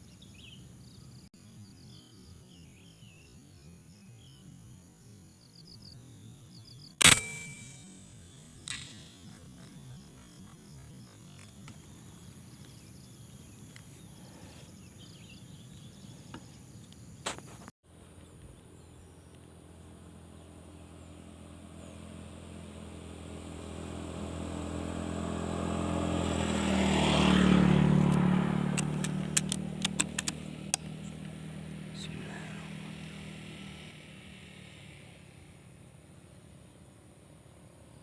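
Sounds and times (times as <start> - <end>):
sharp clicks: 7.0 - 9.7, 28.0 - 31.3
vehicle engine passing: 19.0 - 37.2.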